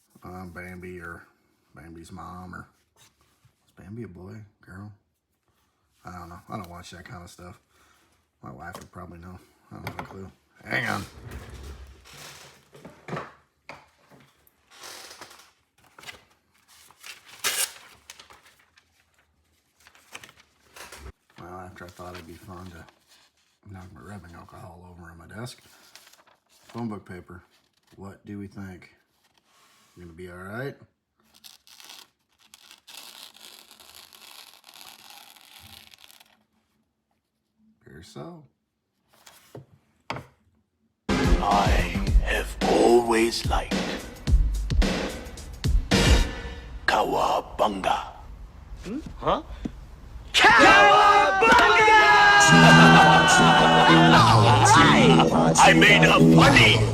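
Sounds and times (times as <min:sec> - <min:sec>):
knife slicing through paper: 0:16.9 - 0:18.3.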